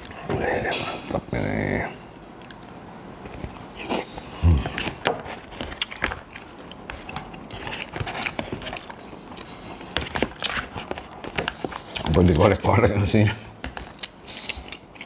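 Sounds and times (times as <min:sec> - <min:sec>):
person chewing food: 0:02.4 - 0:12.1, 0:13.7 - 0:15.0.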